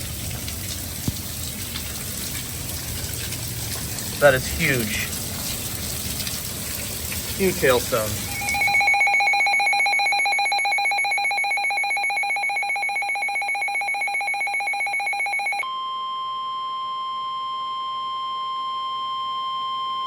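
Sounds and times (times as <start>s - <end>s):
weather alert alarm tone: 7.5s - 20.0s.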